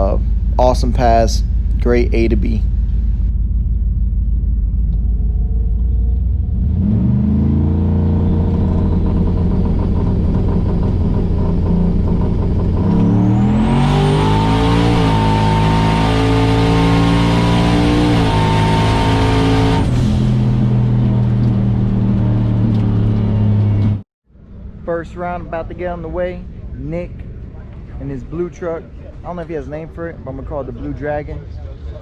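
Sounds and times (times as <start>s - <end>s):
high whine: 0.0s - 28.0s
truck engine revving hard: 6.4s - 24.0s.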